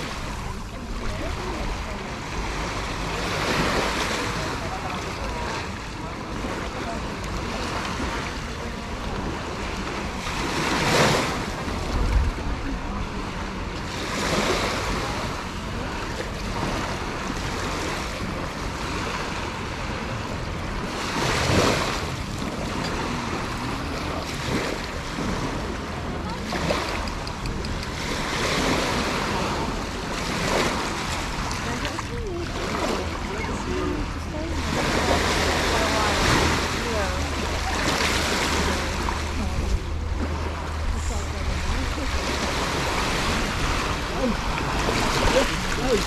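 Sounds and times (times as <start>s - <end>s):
sea waves washing ashore: 0.0s - 46.0s
wind buffeting microphone: 0.0s - 46.0s.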